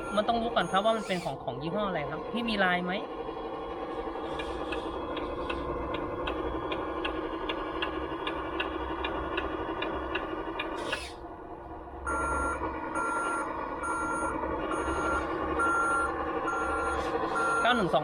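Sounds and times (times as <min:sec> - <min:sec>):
reversing beeper: 0:00.0 - 0:01.2, 0:12.1 - 0:18.0
simulated truck engine idle: 0:00.0 - 0:18.0.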